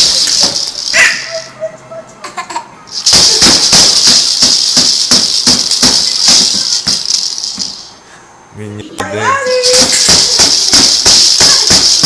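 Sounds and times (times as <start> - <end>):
rattle shaken vigorously: 0.0 - 1.5, 2.9 - 8.0, 9.4 - 12.0.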